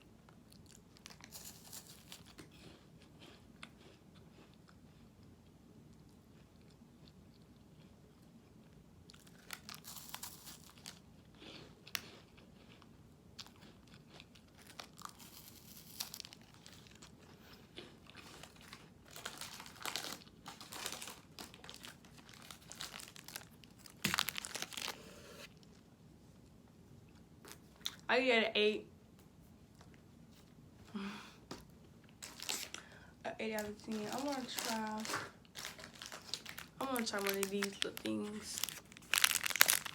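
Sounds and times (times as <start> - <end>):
crunchy wafer bar chewing: 0.3 - 25.7, 33.9 - 39.9.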